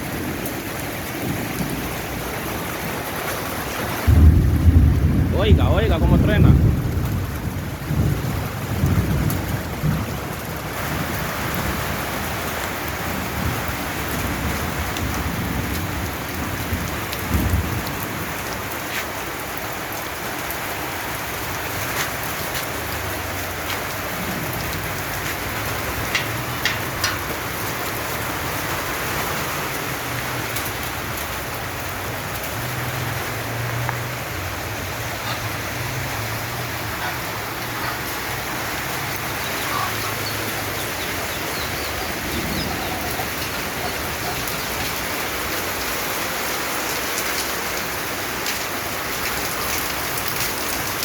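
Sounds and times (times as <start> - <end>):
thunder rumbling: 0.0 - 18.8, 22.8 - 33.4, 36.0 - 46.1
heavy rain falling: 0.0 - 51.0.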